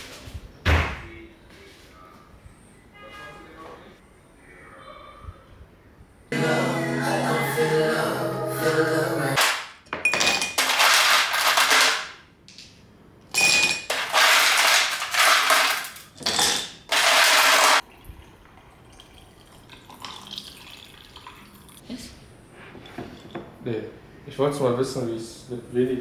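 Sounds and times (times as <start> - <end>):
dishes clinking: 10.0 - 12.0, 13.3 - 17.8, 22.7 - 23.6.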